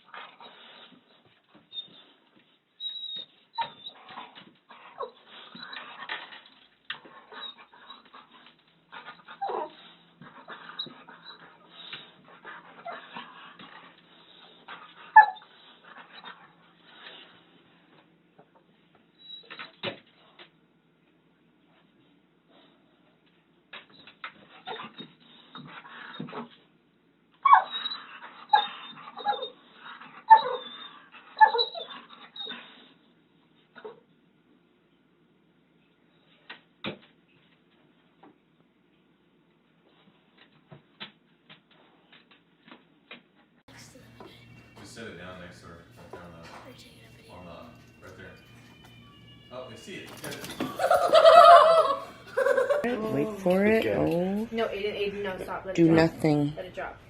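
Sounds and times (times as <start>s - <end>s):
dog making high calls: 27.4s - 29.5s, 50.6s - 52.9s.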